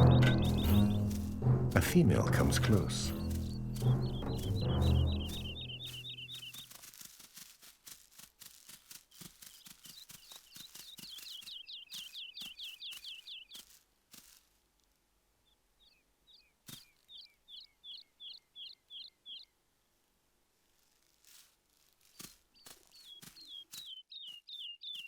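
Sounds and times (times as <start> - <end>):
small bird chirping: 0.0 - 1.4, 2.7 - 7.5, 8.5 - 14.4, 15.4 - 19.6, 21.2 - 25.0.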